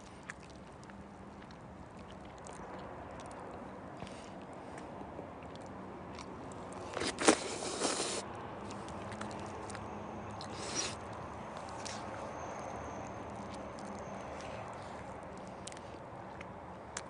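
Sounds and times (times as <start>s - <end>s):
person chewing: 0.0s - 9.8s, 10.4s - 12.2s, 13.3s - 17.0s
person crunching food: 5.4s - 9.8s, 10.4s - 11.0s.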